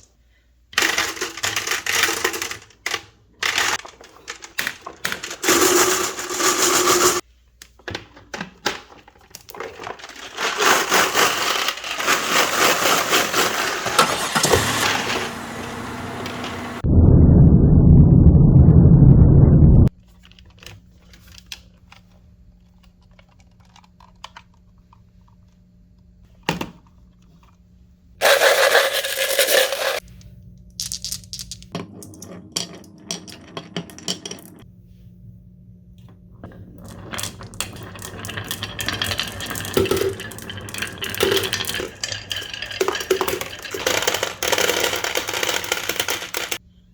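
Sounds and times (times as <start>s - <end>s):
loud low rumble: 16.8s - 19.9s
marbles clattering on wooden run: 36.8s - 46.6s.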